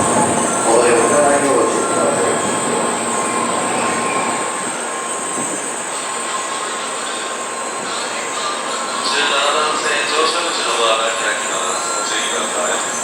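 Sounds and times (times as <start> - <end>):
thin steady whine: 0.0 - 5.4
train rushing rail noise: 0.0 - 13.0.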